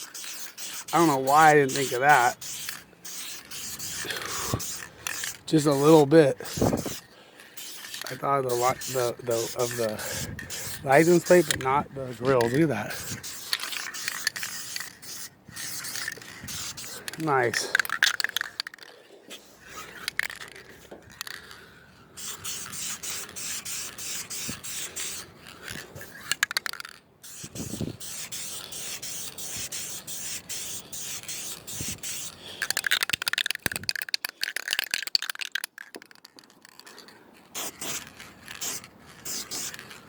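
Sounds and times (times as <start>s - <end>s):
aerosol spray can hissing: 0.0s - 7.0s, 7.6s - 11.6s, 12.4s - 18.5s, 22.2s - 25.2s, 27.3s - 33.6s, 37.6s - 38.0s, 38.6s - 39.8s.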